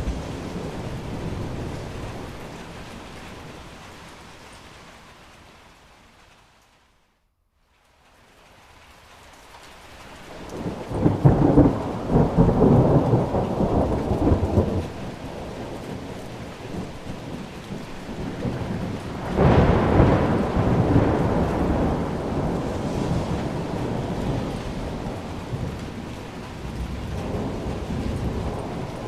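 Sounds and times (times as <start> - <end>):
thunder rumbling: 0.0 - 4.3, 10.3 - 29.0
steady rain: 0.0 - 29.0.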